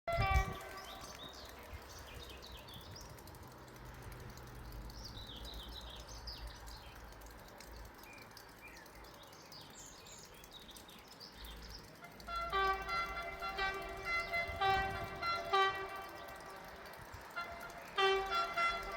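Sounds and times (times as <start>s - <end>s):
train horn: 0.1s - 1.4s, 12.0s - 18.9s
small birds chirping: 0.2s - 18.9s.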